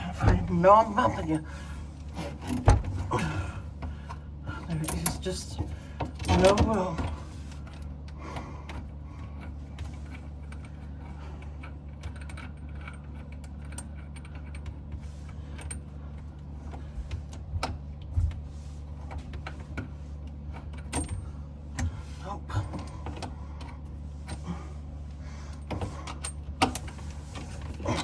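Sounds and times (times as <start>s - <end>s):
steady low hum: 0.0s - 28.0s
tools and pipe fittings clicking: 8.6s - 17.8s.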